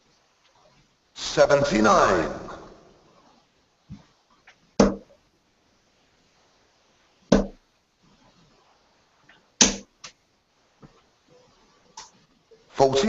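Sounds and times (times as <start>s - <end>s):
darts hitting dartboard: 4.8s - 5.1s, 7.3s - 7.6s, 9.6s - 9.9s.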